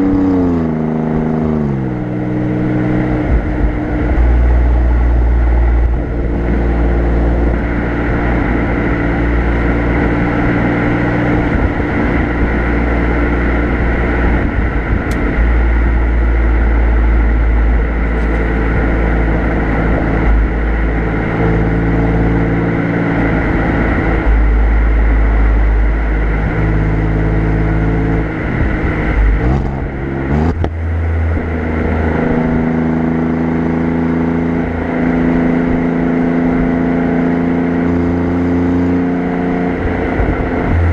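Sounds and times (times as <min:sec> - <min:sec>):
car exhaust engine note: 0:00.0 - 0:40.9.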